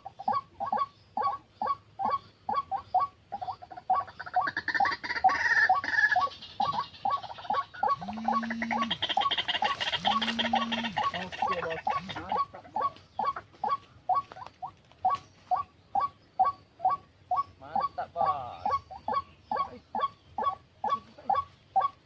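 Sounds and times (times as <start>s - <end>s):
waterhen wak wak call: 0.0s - 22.0s
low steady tones: 8.0s - 9.0s.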